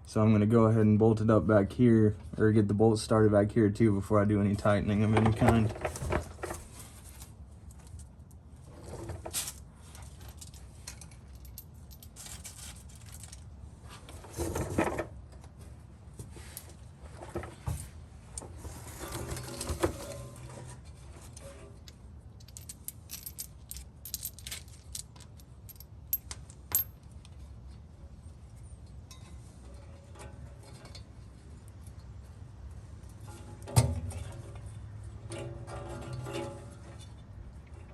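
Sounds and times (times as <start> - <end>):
metal bolts and tools clinking: 9.1 - 13.5, 18.4 - 27.8.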